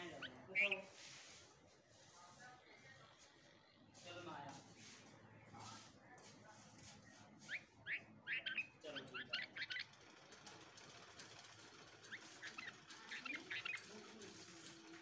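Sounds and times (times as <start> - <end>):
nestlings cheeping: 0.0 - 1.0, 7.5 - 15.0.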